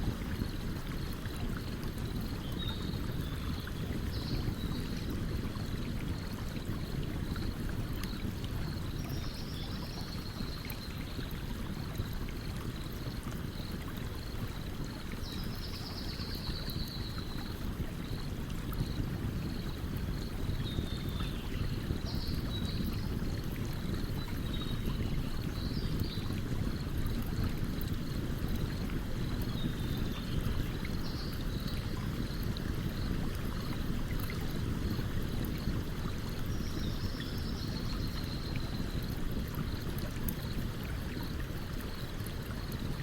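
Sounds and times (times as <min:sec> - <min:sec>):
stream running: 0:00.0 - 0:43.0.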